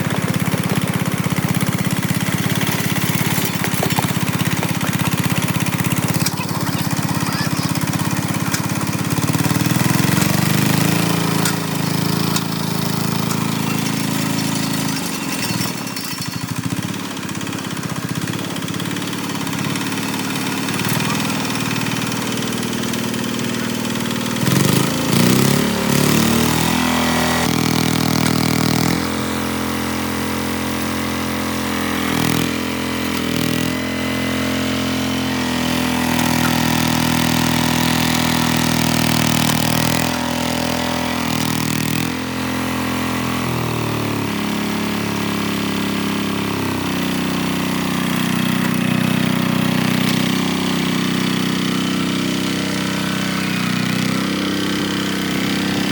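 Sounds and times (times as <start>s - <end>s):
tractor diesel engine revving: 0.0s - 55.9s.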